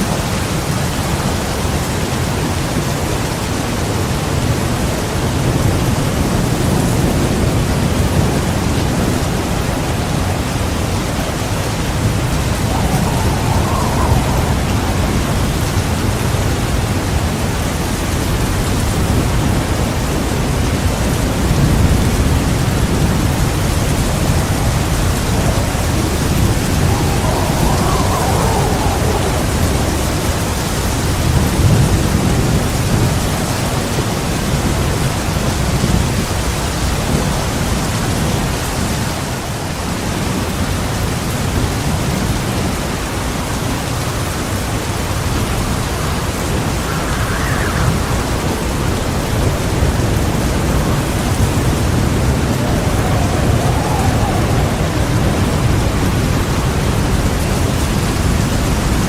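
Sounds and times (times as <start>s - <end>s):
heavy rain: 0.0s - 59.0s
low rolling thunder: 6.7s - 37.4s, 45.0s - 59.0s.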